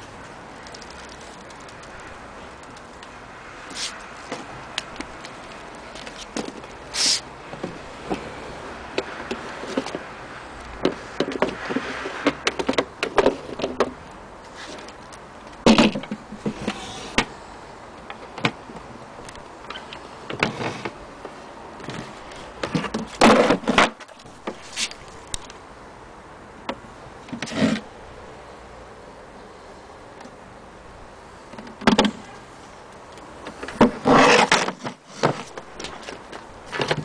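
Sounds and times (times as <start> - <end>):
clicks and knocks of handled parts: 0.0 - 6.8, 8.9 - 17.3, 17.9 - 25.6, 31.5 - 37.0
rattling scrapes: 33.5 - 37.0.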